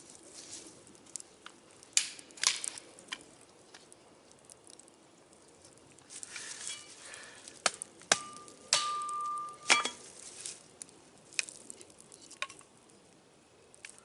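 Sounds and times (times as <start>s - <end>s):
sharp knocks and cracks: 1.1s - 3.9s, 7.5s - 10.1s.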